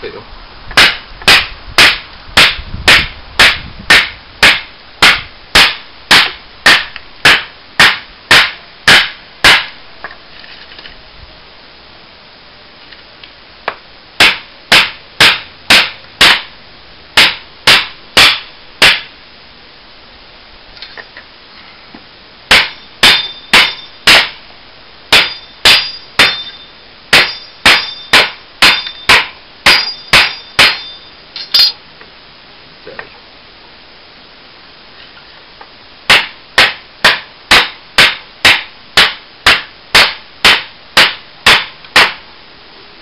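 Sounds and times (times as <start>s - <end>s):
machete chopping wood: 0.8s - 9.8s, 14.2s - 16.5s, 17.2s - 19.1s, 22.5s - 24.4s, 25.1s - 26.4s, 27.2s - 30.9s, 36.1s - 42.2s.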